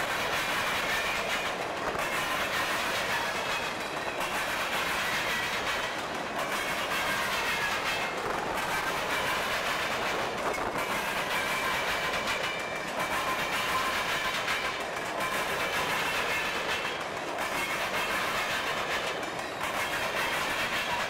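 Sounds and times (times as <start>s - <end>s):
train wheels clattering: 0.0s - 21.0s.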